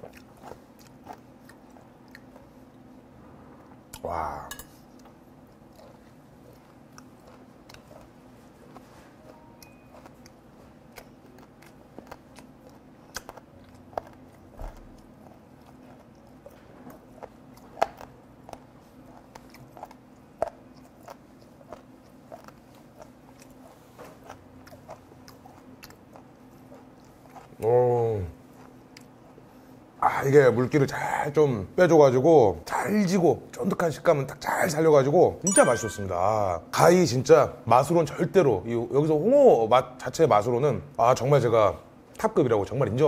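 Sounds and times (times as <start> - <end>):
crunchy chewing: 0.0 - 3.1, 4.8 - 30.0
faint steady hum: 0.0 - 43.0.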